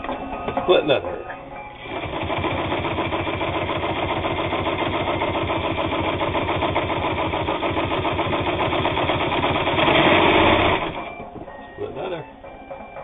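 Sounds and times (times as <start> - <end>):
sewing machine motor running: 1.8 - 11.2.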